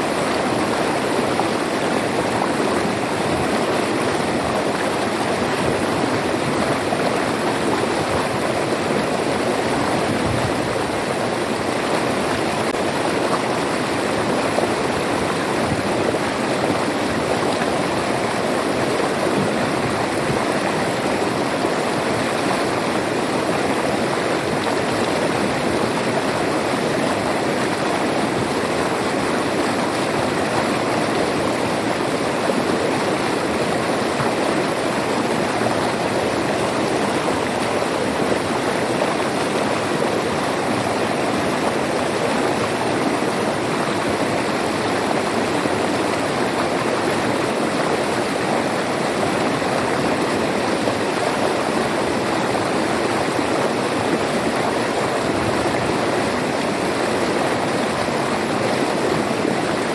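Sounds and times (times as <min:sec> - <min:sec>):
river water flowing over rocks: 0:00.0 - 0:59.9.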